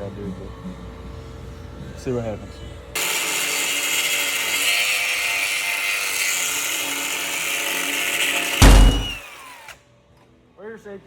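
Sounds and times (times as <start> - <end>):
grinder cutting metal: 3.0 - 9.8
loud thump: 8.6 - 9.2.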